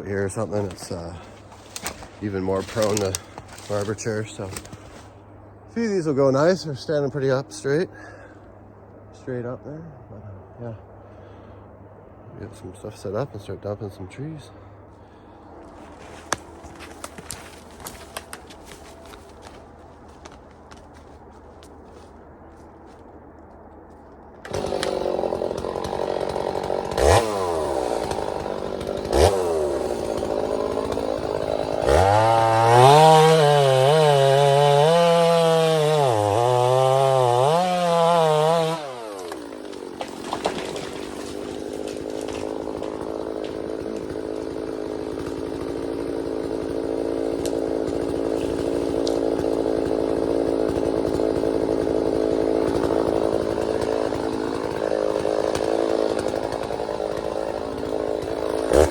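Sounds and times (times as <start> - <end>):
chainsaw revving: 0.3 - 5.0, 24.4 - 58.9.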